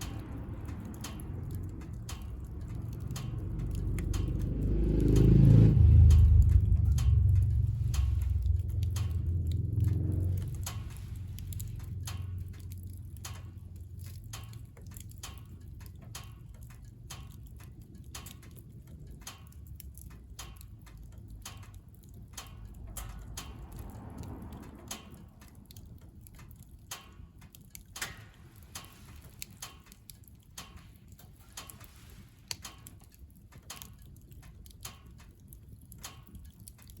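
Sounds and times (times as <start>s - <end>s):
low rumble: 0.0s - 17.2s, 19.8s - 26.8s
wood fire crackling: 0.0s - 37.0s.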